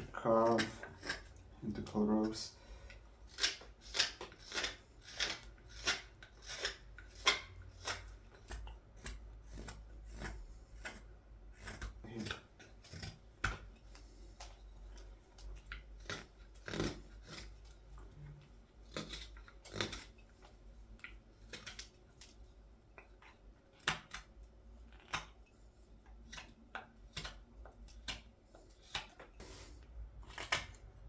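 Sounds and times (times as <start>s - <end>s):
knife slicing wood shavings: 3.3s - 13.6s.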